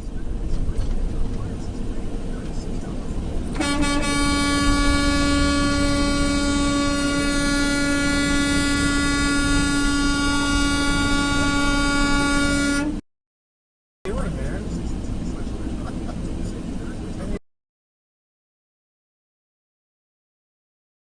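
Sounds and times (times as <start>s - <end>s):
vehicle horn blast: 3.5s - 13.0s.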